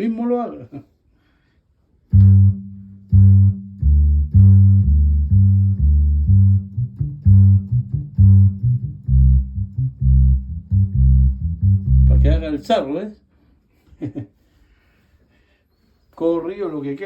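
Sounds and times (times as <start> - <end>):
electronic bass line: 2.1 - 12.6.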